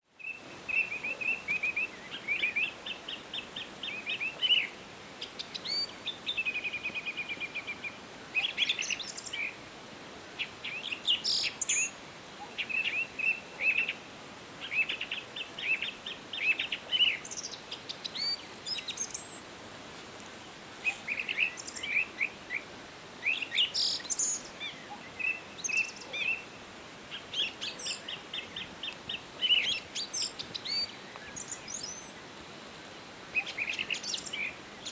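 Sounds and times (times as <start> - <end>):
faint forest ambience hiss: 0.0 - 34.9
songbirds singing trills and chirps: 0.1 - 9.7, 10.3 - 19.5, 20.2 - 34.9.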